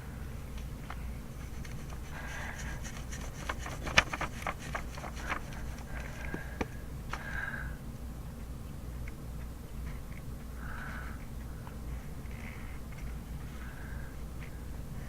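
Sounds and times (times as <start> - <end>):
pencil scratching on paper: 1.4 - 6.2.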